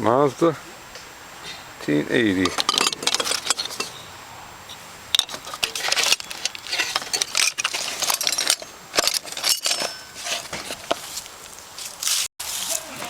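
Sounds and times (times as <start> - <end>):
small hard objects clinking: 5.2 - 10.5.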